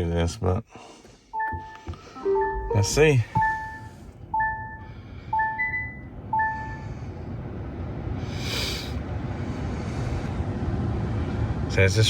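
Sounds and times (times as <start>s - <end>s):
low hum: 1.5s - 7.7s.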